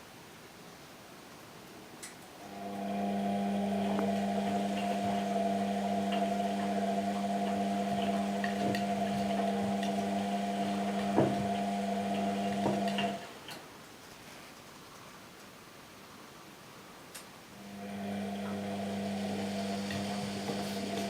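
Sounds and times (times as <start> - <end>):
washing machine motor humming: 2.4 - 13.4, 17.6 - 21.0
knock: 11.2 - 11.4.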